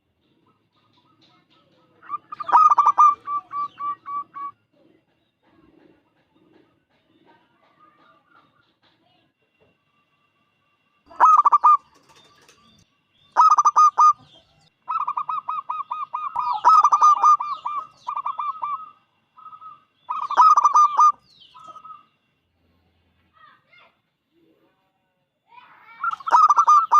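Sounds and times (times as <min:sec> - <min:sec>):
dove cooing: 0:00.8 - 0:04.5, 0:11.1 - 0:12.4, 0:13.4 - 0:14.3, 0:14.9 - 0:22.0, 0:26.1 - 0:26.9.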